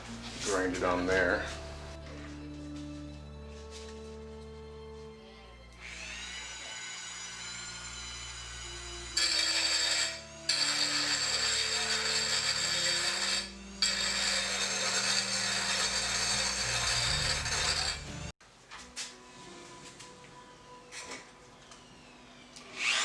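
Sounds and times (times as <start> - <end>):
rotary tool grinding sheet steel: 5.8 - 18.3.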